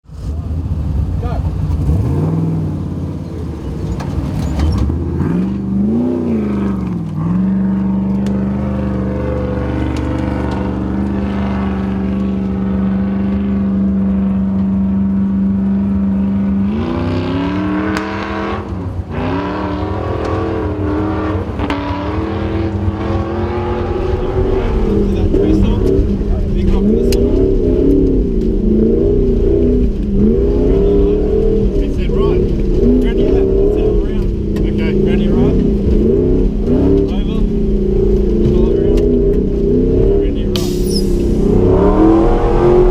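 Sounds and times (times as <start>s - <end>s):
off-road vehicle engine revving: 0.0s - 42.9s.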